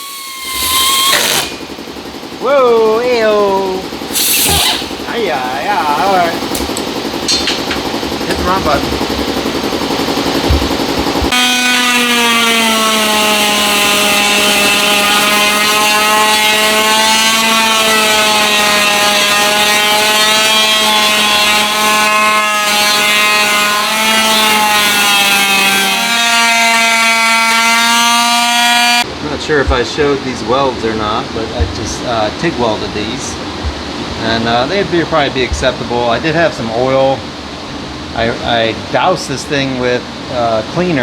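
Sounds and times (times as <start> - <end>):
air tool high whine: 0.0 - 29.1.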